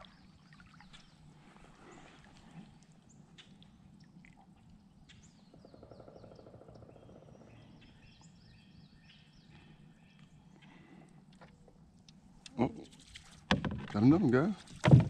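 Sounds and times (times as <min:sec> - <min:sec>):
faint bird chirps: 0:00.0 - 0:11.1.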